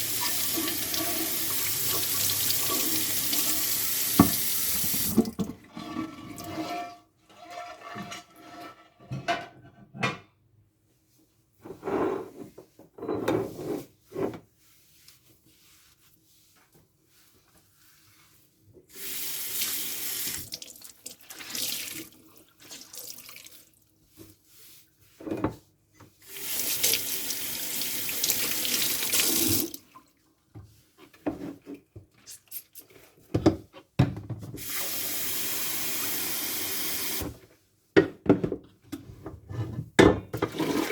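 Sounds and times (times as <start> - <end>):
sink tap running: 0.0 - 5.3.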